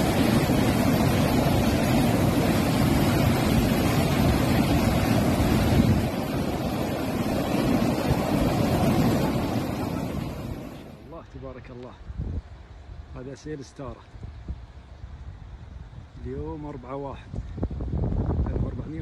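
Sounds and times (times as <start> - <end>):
floodwater rushing: 0.0 - 11.1
wind buffeting microphone: 0.0 - 13.1, 14.1 - 19.0.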